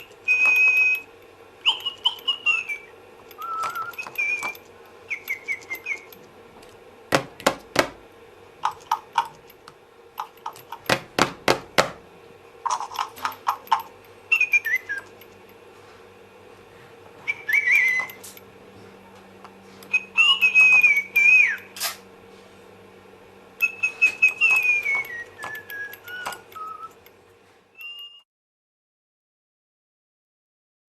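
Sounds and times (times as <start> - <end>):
toy bird chirping and whistling: 0.0 - 6.2, 12.7 - 15.2, 17.2 - 18.4, 19.9 - 21.8, 23.6 - 27.0, 27.8 - 28.2.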